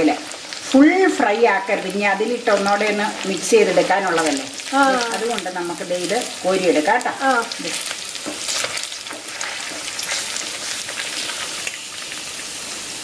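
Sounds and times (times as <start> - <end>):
chicken sizzling in hot oil: 0.0 - 13.0
spoon stirring and scraping pan: 2.2 - 11.8.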